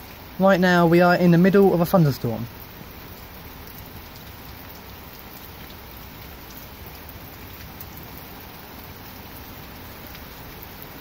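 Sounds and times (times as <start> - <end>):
heavy rain hissing: 0.0 - 11.0
raindrops pattering: 0.0 - 11.0.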